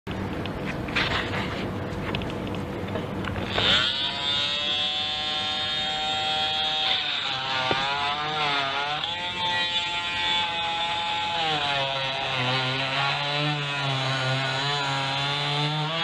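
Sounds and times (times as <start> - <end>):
power tool motor cutting: 3.4 - 16.0.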